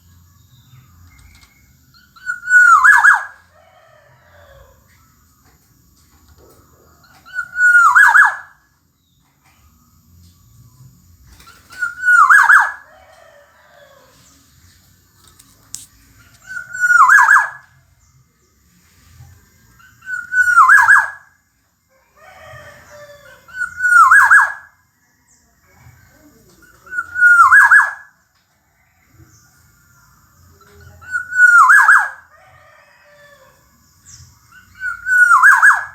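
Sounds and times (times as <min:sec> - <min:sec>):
bird harsh calls: 0:02.0 - 0:03.4, 0:07.1 - 0:08.5, 0:11.4 - 0:12.8, 0:16.4 - 0:17.7, 0:19.8 - 0:21.2, 0:23.2 - 0:24.6, 0:26.7 - 0:28.0, 0:31.0 - 0:32.2, 0:34.5 - 0:35.9.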